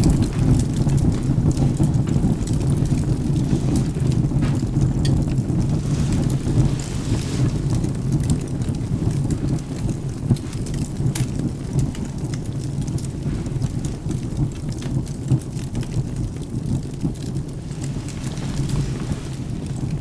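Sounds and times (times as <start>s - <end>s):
rain: 0.0s - 20.0s
thunder rumble: 0.0s - 20.0s
wood fire crackling and popping: 0.0s - 20.0s.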